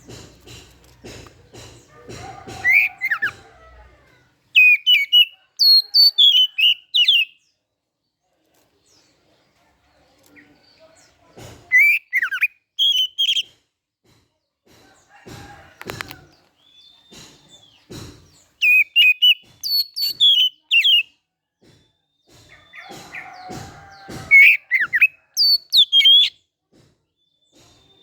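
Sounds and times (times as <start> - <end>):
bird singing whistled phrases: 4.6 - 7.4, 11.7 - 13.4, 18.6 - 21.1, 24.3 - 26.3.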